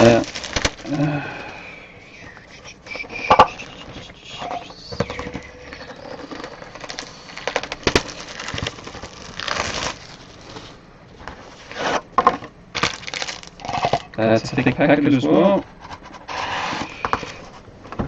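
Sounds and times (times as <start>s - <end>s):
card packs clicking and tapping: 0.0s - 1.0s, 4.8s - 10.1s, 12.8s - 13.6s
wrapper rustle: 0.0s - 1.0s, 5.6s - 11.6s, 12.8s - 13.9s
wrappers crinkling: 0.0s - 1.1s, 3.5s - 10.8s, 12.8s - 13.9s.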